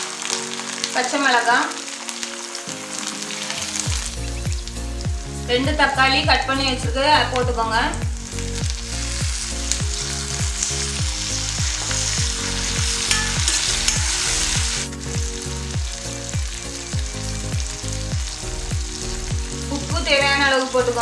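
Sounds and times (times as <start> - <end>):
vegetables sizzling in hot oil: 0.0 - 21.0
low thumping beat: 3.9 - 20.2.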